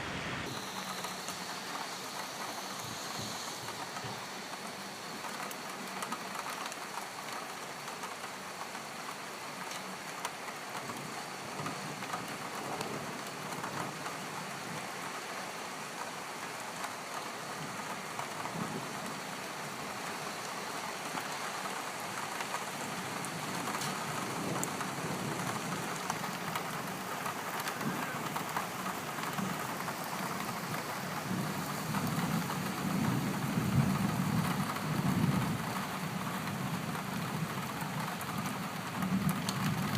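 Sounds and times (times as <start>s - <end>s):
rain falling: 0.0s - 39.9s
thunder rumbling: 23.2s - 39.9s.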